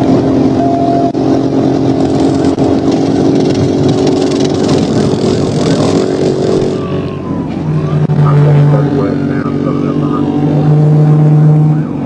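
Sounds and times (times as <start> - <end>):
car engine at high revs: 0.0 - 12.0
wind and tyre noise: 0.0 - 12.0.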